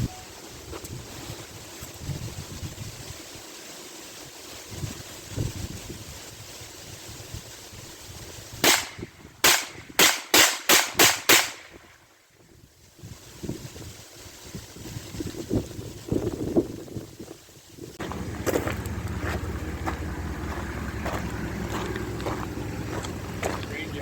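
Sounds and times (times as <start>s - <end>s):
light wind: 0.0s - 24.0s
sharp bangs: 8.6s - 11.8s.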